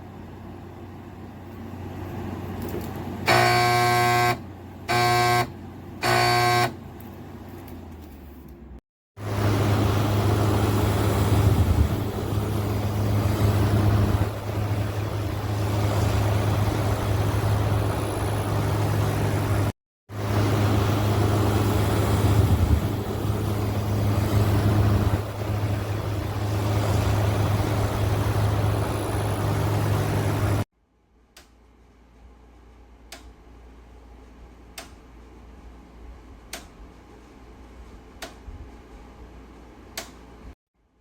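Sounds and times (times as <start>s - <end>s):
air conditioner running: 0.0s - 40.5s.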